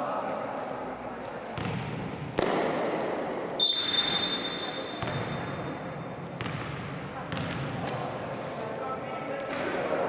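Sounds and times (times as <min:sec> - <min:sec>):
voices in a gym: 0:00.0 - 0:10.0
basketball bouncing: 0:01.6 - 0:02.9, 0:05.0 - 0:05.5, 0:06.2 - 0:08.0
referee's whistle blast: 0:03.6 - 0:05.0.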